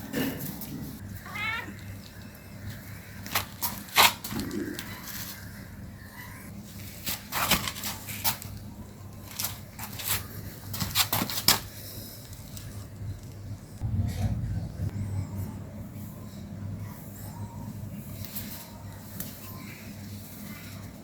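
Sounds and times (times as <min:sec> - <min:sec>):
cats scratching and rustling: 0:00.3 - 0:05.7, 0:06.6 - 0:13.8.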